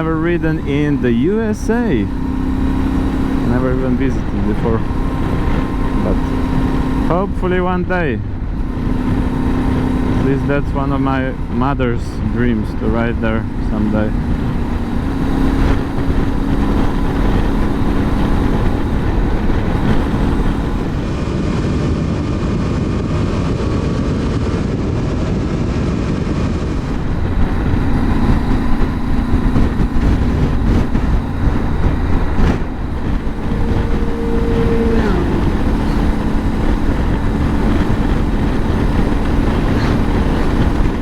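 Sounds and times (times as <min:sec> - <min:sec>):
motorcycle engine cruising: 0:00.0 - 0:41.0
wind and road rush: 0:00.0 - 0:41.0.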